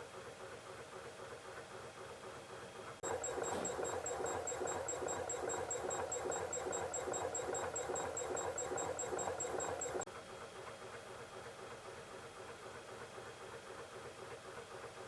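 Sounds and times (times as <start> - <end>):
solenoid engine clicking and rattling: 3.0 - 10.1.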